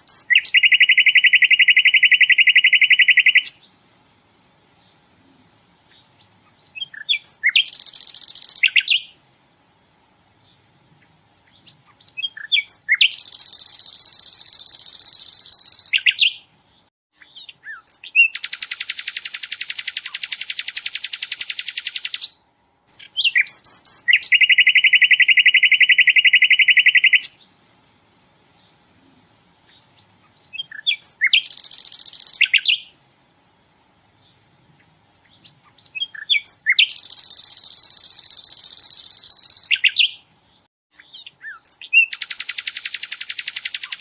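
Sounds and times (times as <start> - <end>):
bird singing fast trills: 0.0 - 3.7, 5.9 - 9.2, 11.5 - 16.5, 17.2 - 27.4, 29.7 - 33.0, 35.2 - 40.3, 40.9 - 44.0
short bird chirps: 0.0 - 3.7, 5.9 - 9.2, 10.4 - 27.4, 29.7 - 33.0, 35.3 - 40.2, 40.9 - 44.0.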